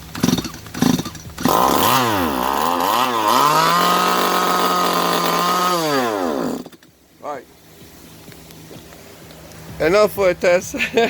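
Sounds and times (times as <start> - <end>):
chainsaw engine revving: 0.0 - 6.9.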